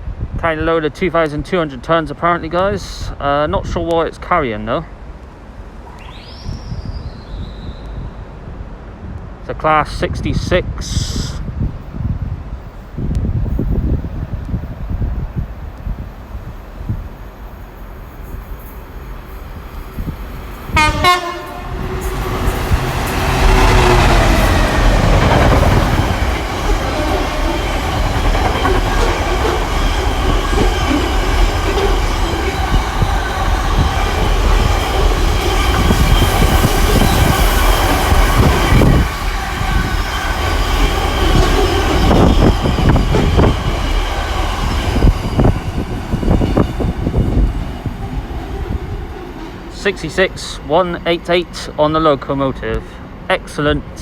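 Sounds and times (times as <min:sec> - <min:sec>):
diesel locomotive engine passing: 0:11.6 - 0:54.0
locomotive horn: 0:20.7 - 0:23.9
freight wagons clattering over rails: 0:21.5 - 0:49.8.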